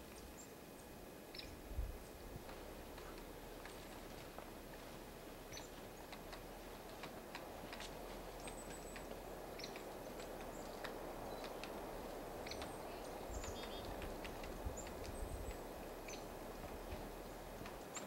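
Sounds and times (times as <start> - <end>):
small birds chirping: 0.0 - 2.2, 5.4 - 18.0
steady outdoor hiss: 0.0 - 18.0
sharp little ticks and clicks: 6.0 - 15.7.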